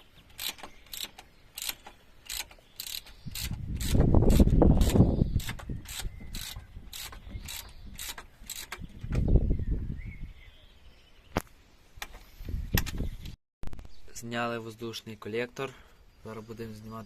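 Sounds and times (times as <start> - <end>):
ratchet wrench clicking: 0.3 - 8.8.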